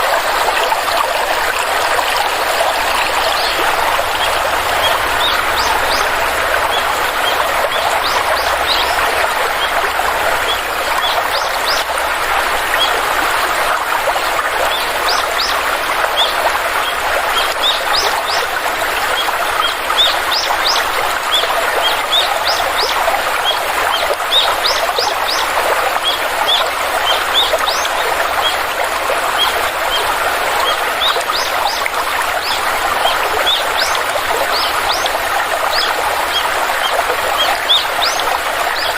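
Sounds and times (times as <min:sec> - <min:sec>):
stream rushing: 0:00.0 - 0:38.9
small birds chirping: 0:02.7 - 0:09.8, 0:29.3 - 0:38.9.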